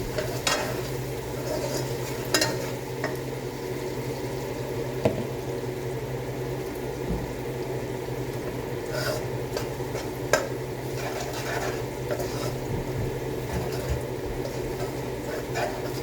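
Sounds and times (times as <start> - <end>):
utensil scraping a pan: 0.0 - 3.2, 8.8 - 16.0
sauce sizzling: 0.0 - 16.0.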